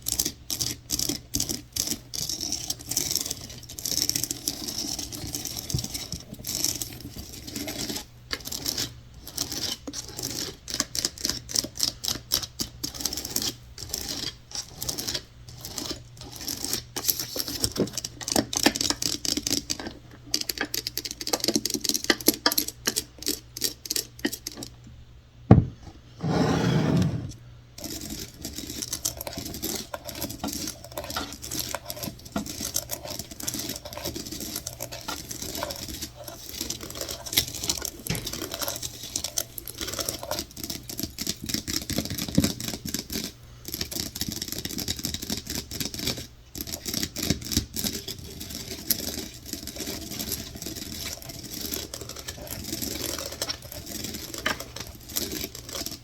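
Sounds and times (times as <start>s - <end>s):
loud scraping: 26.2s - 27.4s.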